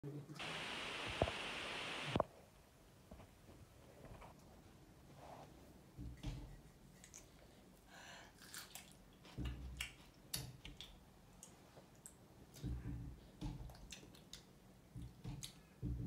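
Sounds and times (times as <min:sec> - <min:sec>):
chewing raw cucumber: 0:08.3 - 0:12.6.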